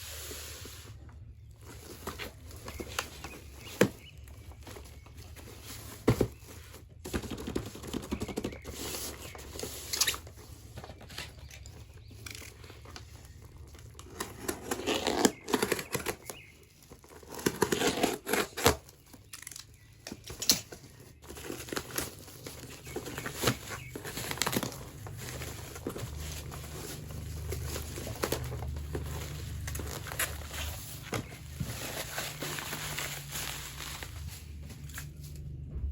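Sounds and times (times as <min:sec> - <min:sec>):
packaging crinkling and tearing: 0:11.0 - 0:35.5.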